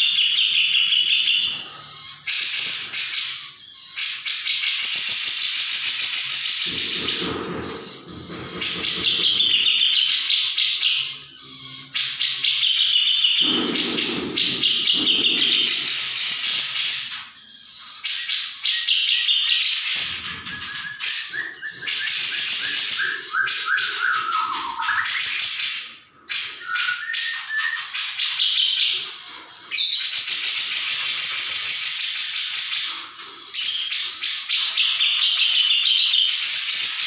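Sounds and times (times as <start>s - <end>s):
bird harsh rapid chattering: 0.6s - 11.1s, 11.7s - 17.2s
bird whistled notes: 17.9s - 28.8s.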